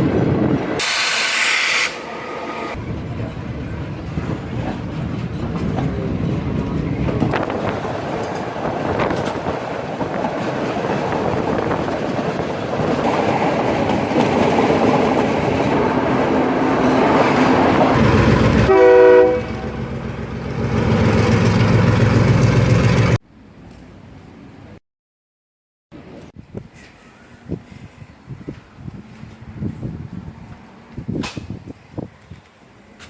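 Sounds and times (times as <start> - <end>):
train rumbling on rails: 0.0 - 1.0, 1.9 - 24.8
train horn blast: 18.6 - 19.9.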